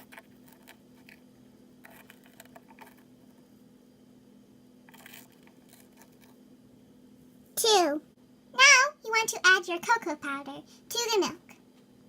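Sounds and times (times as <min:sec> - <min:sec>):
steady low hum: 0:00.0 - 0:12.0
small spoon tapping and scraping: 0:01.8 - 0:03.1, 0:04.9 - 0:06.4.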